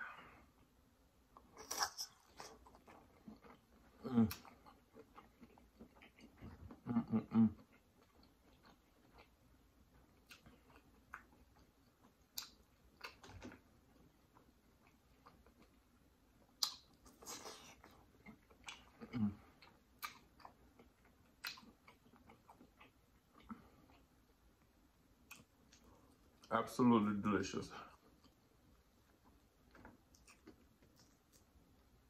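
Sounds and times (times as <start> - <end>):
wet chewing sounds: 1.6 - 26.5, 27.9 - 31.9
sharp mouth clicks and smacks: 12.3 - 13.5, 16.6 - 17.0.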